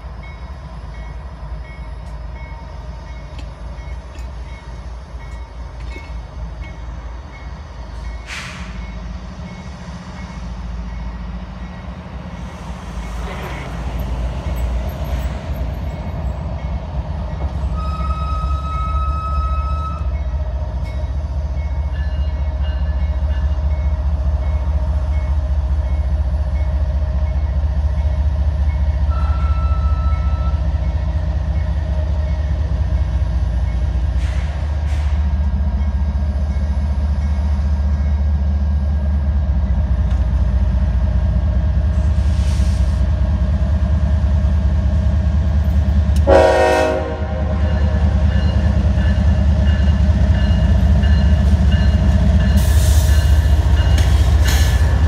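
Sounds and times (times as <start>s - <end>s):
train rumbling: 0.0s - 55.0s
train horn blast: 46.2s - 47.8s.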